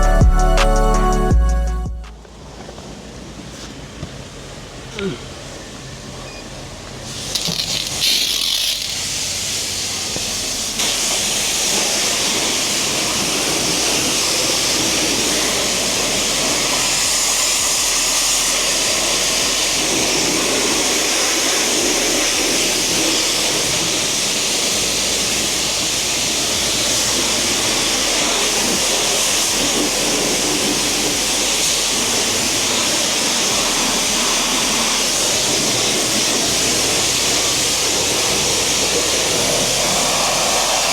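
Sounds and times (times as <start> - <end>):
water spraying hiss: 7.0 - 40.9.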